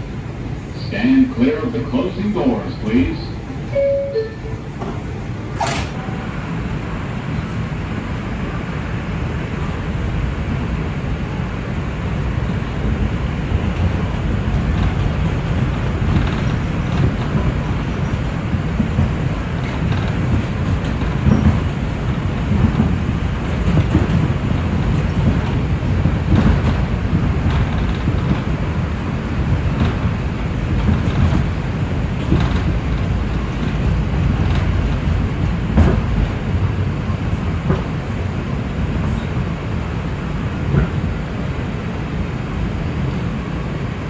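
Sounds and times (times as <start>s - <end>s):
subway train rumbling on rails: 0.0s - 44.0s
wheels clicking over rail joints: 12.9s - 36.8s.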